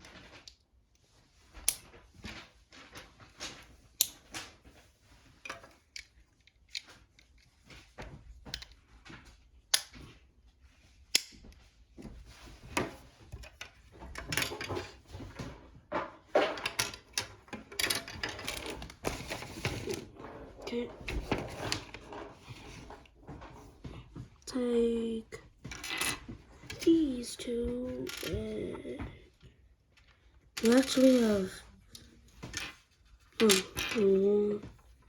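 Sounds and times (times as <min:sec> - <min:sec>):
plastic parts clicking: 0:05.5 - 0:07.5.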